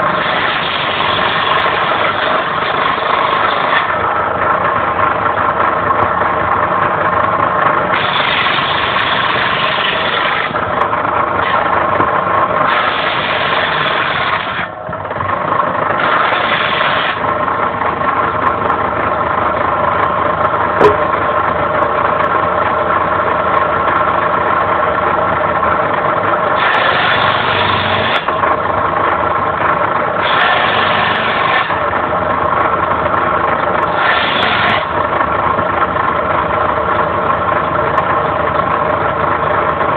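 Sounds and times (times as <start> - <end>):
saw blade cutting firewood: 0.0 - 4.2, 7.9 - 15.0, 15.9 - 17.4, 26.5 - 28.4, 30.2 - 32.1, 33.8 - 35.0
circular saw motor whining: 0.0 - 4.9, 7.9 - 11.9, 12.6 - 15.1, 16.0 - 17.4, 26.5 - 28.5, 30.1 - 32.4, 33.8 - 35.1.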